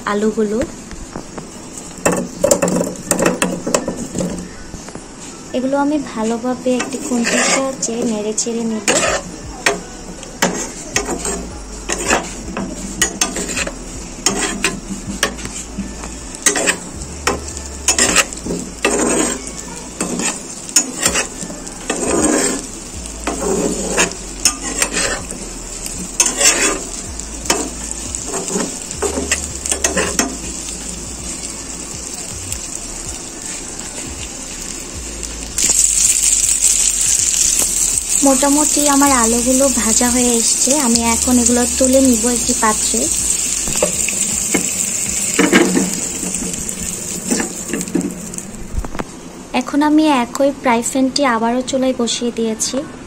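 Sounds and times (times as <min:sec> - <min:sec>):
potatoes sizzling in oil: 0:00.0 - 0:52.7
spatula scraping and knocking pan: 0:06.8 - 0:08.2, 0:08.8 - 0:09.8, 0:10.4 - 0:25.4, 0:26.2 - 0:26.9, 0:38.2 - 0:48.2.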